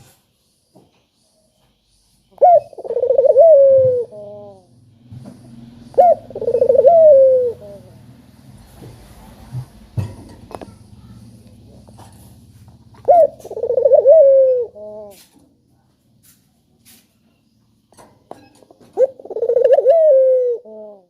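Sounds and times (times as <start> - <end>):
dove cooing: 2.4 - 4.7, 5.9 - 8.2, 13.0 - 15.3, 18.8 - 21.0.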